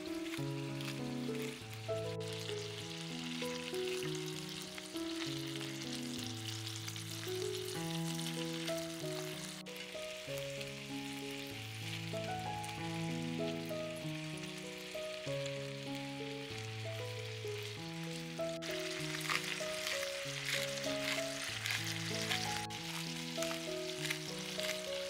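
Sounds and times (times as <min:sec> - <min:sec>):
food sizzling in a frying pan: 0:00.0 - 0:25.0
slow background music with bass: 0:03.6 - 0:14.6.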